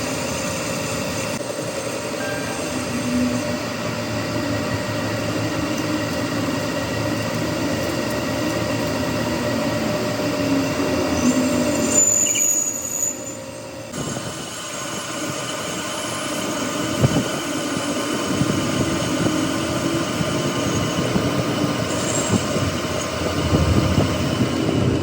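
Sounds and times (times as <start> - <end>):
machinery whine: 0.0 - 25.0
low rumble: 22.2 - 25.0.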